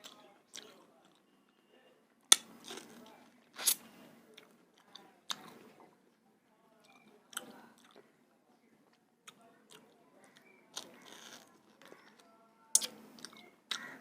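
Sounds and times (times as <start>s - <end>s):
person chewing food: 0.0s - 1.3s, 2.3s - 6.0s, 6.8s - 8.1s, 9.3s - 14.0s.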